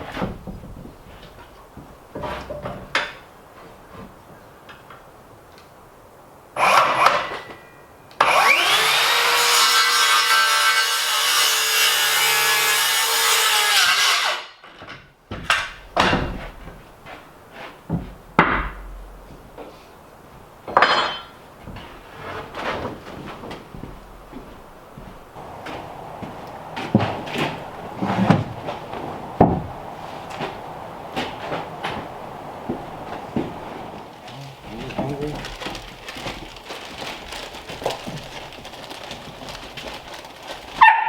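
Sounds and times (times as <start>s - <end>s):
power saw cutting timber: 6.6s - 7.2s, 8.2s - 14.5s, 25.4s - 35.8s
wooden boards knocking: 25.4s - 36.6s.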